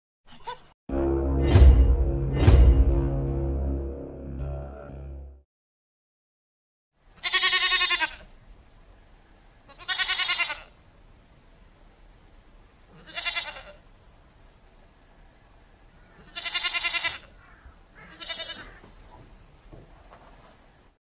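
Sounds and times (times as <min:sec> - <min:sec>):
goat bleating: 0:07.2 - 0:08.3, 0:09.7 - 0:10.8, 0:12.9 - 0:13.8, 0:16.2 - 0:17.4, 0:18.0 - 0:18.9.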